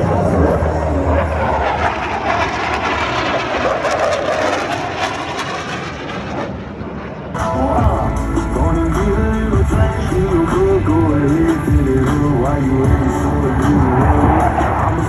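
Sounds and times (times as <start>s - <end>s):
jet flying past: 0.0s - 8.0s, 11.3s - 15.0s.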